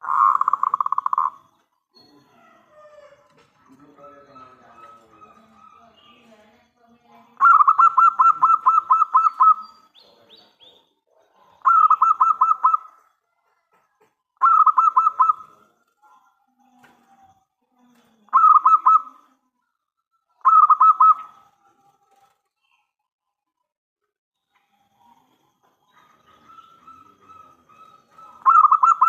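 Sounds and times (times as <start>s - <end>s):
dove cooing: 0.0s - 1.4s, 2.4s - 6.2s, 7.4s - 9.7s, 11.3s - 13.0s, 14.4s - 15.8s, 18.2s - 19.3s, 20.4s - 22.2s, 25.8s - 29.0s.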